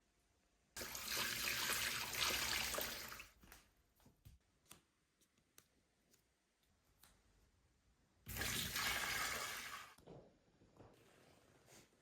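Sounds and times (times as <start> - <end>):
water pouring into a basin: 0.8 - 3.4, 8.3 - 10.0.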